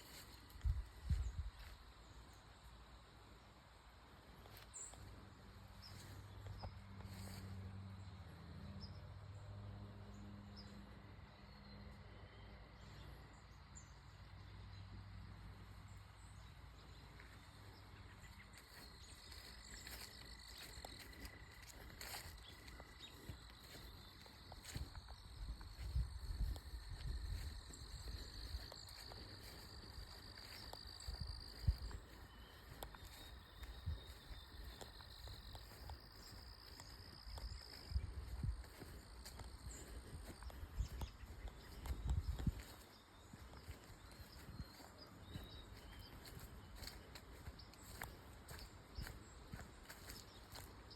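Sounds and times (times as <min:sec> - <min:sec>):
footsteps on ground: 0:00.0 - 0:01.9, 0:17.1 - 0:50.9.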